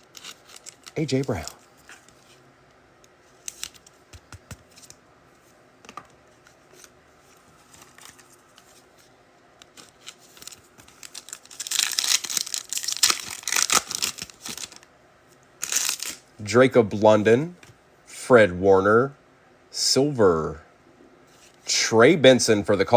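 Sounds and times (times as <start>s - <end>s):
foil wrapper tearing and crinkling: 0.0s - 1.6s, 9.7s - 14.8s, 15.6s - 16.2s.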